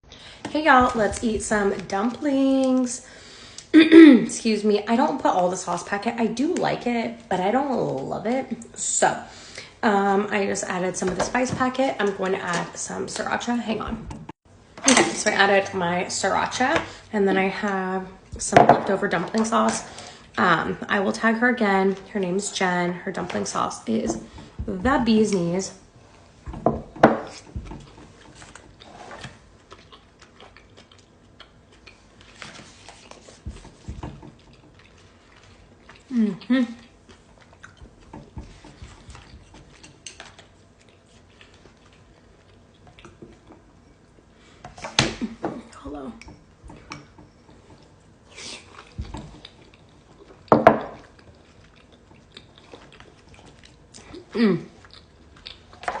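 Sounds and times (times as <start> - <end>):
chewing and wet mouth noises: 27.3 - 44.3, 47.1 - 55.9.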